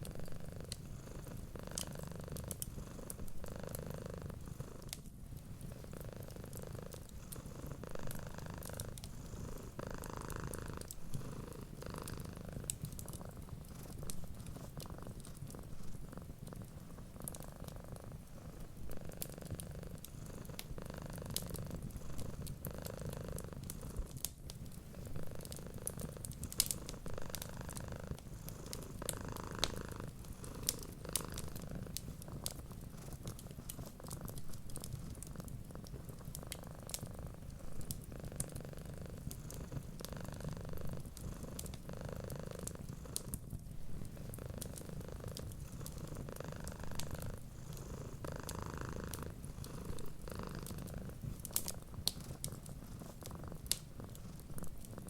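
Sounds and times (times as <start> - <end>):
wood fire crackling: 0.0 - 3.8, 4.8 - 55.0
cat purring: 0.0 - 55.0.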